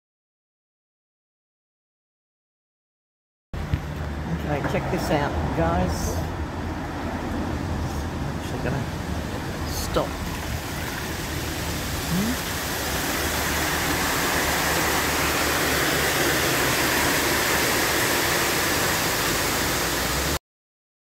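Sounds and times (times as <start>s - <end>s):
loud rushing noise: 6.4s - 20.4s.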